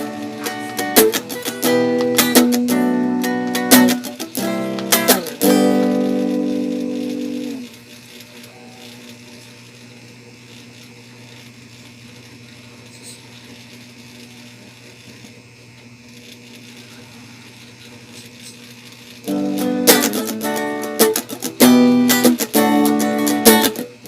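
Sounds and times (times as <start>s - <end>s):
faint amplifier hiss: 0.0s - 7.7s
amplifier electrical hum: 0.0s - 24.0s.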